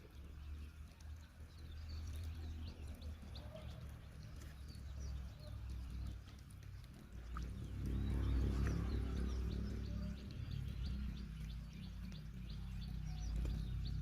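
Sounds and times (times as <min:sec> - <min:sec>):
small birds chirping: 0:00.0 - 0:14.0
steady low rumble: 0:04.0 - 0:14.0.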